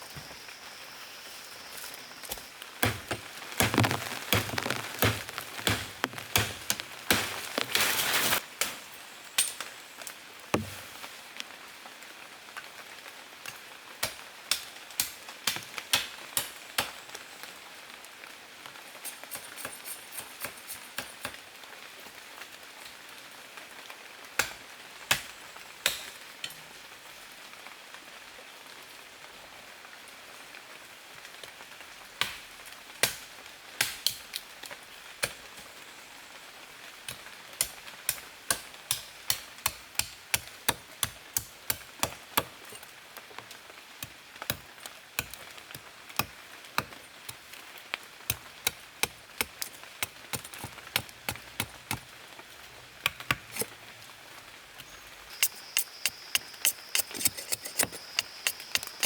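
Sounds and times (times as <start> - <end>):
wood being struck and split: 2.8 - 7.9.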